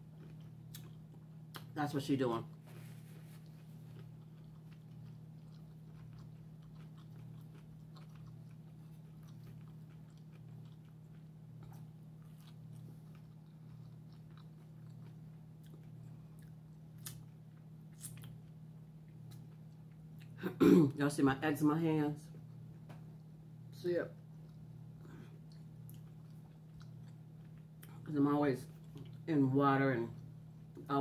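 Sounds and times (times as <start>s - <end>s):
person chewing and biting: 0.0s - 1.8s, 2.5s - 20.4s, 24.3s - 28.0s
steady low hum: 0.0s - 31.0s.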